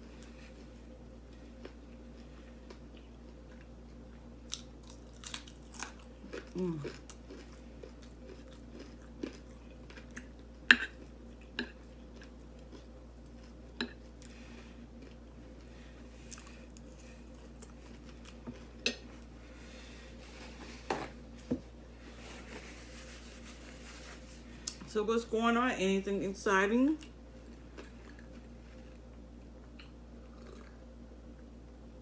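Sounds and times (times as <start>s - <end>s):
person chewing: 0.0s - 20.7s, 27.4s - 30.8s.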